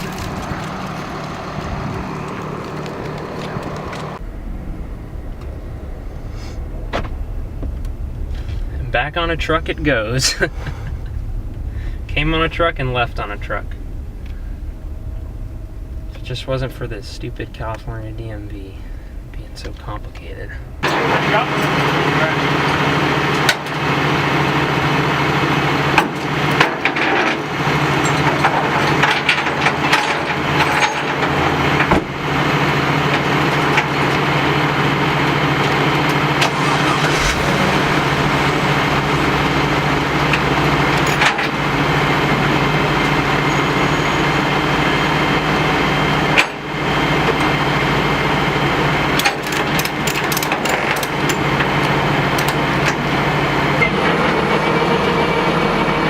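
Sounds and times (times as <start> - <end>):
clunks and rattles: 0.0 - 21.9, 25.9 - 32.3, 35.6 - 43.5, 49.2 - 53.2
truck engine running: 0.0 - 56.0.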